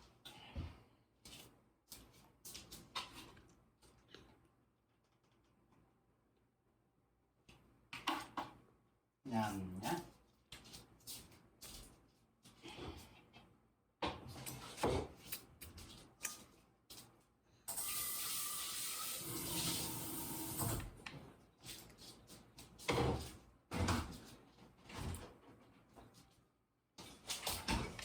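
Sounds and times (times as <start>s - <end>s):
water running from tap: 17.7s - 21.0s.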